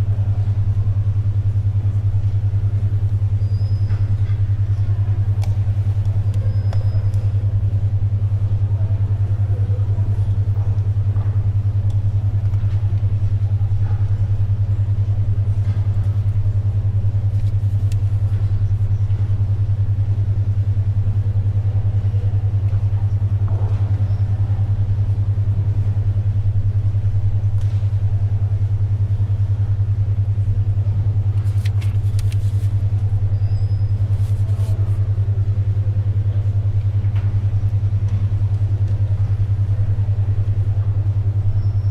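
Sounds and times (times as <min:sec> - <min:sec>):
faint library ambience: 0:00.0 - 0:41.9
pulsing low hum tone: 0:00.0 - 0:41.9
paper and pencil rustling: 0:17.3 - 0:18.6, 0:31.4 - 0:33.3, 0:33.9 - 0:35.0.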